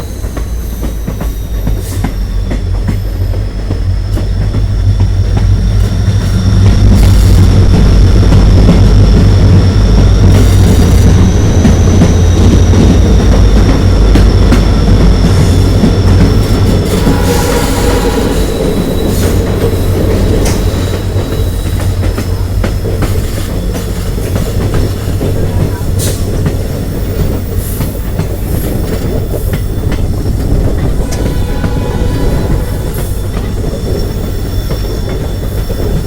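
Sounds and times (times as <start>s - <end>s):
faint high wheel squeal: 0.0s - 4.6s, 11.0s - 36.0s
train rumbling on rails: 0.0s - 36.0s
wheels clicking over rail joints: 11.1s - 36.0s.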